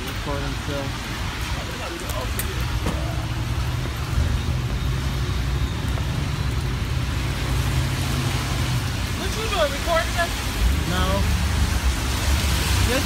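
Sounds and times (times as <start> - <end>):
heavy rain on street: 0.0 - 13.0
road traffic rumble: 0.0 - 13.0.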